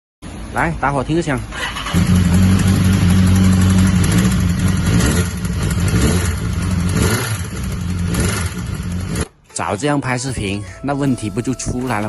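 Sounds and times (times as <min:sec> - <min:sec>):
motorcycle engine running: 0:01.8 - 0:09.4.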